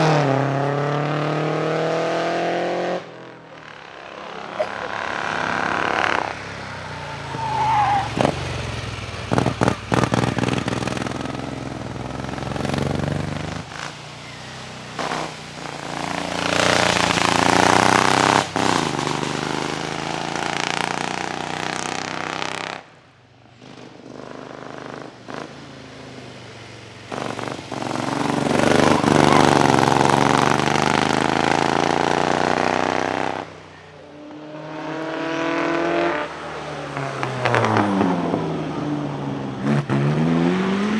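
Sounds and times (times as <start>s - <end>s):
racing car engines accelerating: 0.0s - 22.8s, 23.6s - 40.9s.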